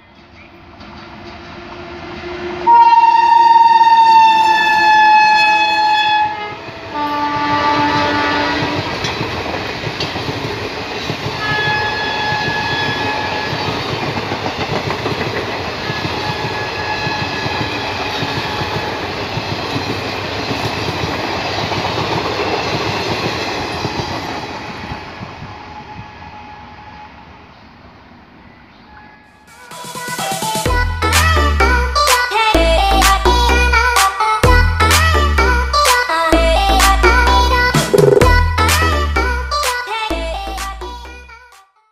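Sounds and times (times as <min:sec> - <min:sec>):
train coaches rumbling and clattering: 0:00.0 - 0:02.7, 0:06.5 - 0:26.5
locomotive multi-tone horn: 0:02.4 - 0:09.1, 0:11.4 - 0:13.8, 0:15.8 - 0:19.2, 0:25.5 - 0:27.3.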